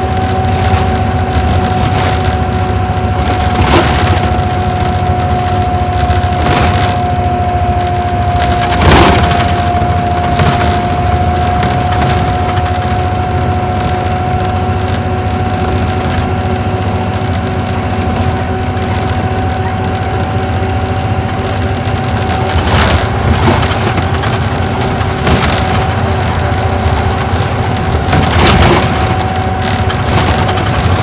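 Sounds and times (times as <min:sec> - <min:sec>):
coach engine drone: 0:00.0 - 0:31.0
constant high whine: 0:00.0 - 0:31.0
rattling jolts: 0:06.2 - 0:07.6, 0:08.2 - 0:12.8, 0:21.8 - 0:31.0.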